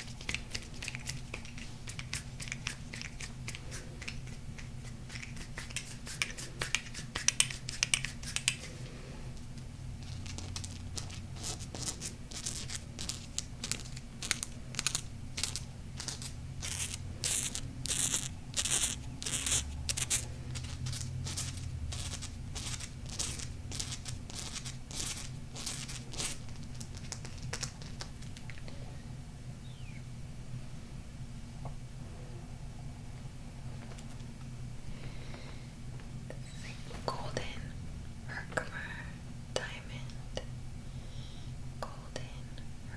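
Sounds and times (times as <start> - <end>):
crystals tapped and scratched: 0.0 - 8.7, 10.0 - 28.6
faint low hum: 0.0 - 42.9.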